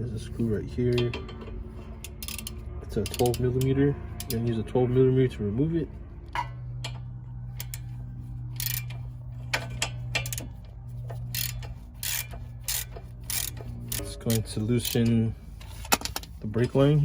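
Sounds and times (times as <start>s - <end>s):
ratchet wrench clicking: 0.9s - 4.4s, 7.6s - 16.3s.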